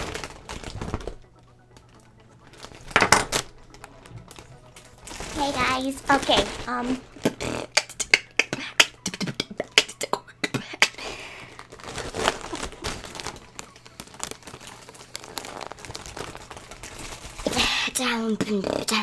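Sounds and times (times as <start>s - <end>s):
beatboxing: 7.2s - 11.3s.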